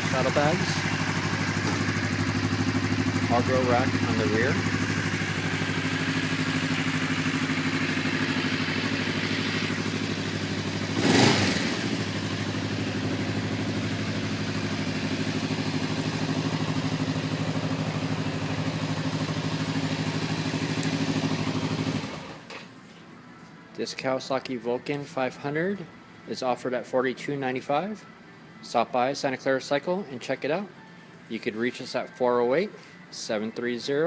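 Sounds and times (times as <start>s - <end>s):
motorcycle engine idling: 0.0s - 22.5s
engine revving burst: 10.9s - 12.1s.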